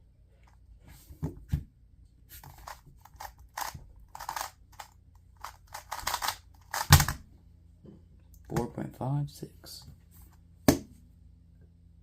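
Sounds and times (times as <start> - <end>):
plastic puzzle cube clicking: 2.6 - 7.2.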